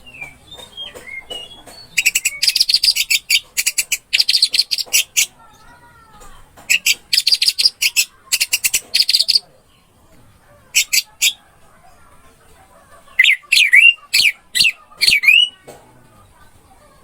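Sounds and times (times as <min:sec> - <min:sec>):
thrush singing: 0:13.2 - 0:15.6.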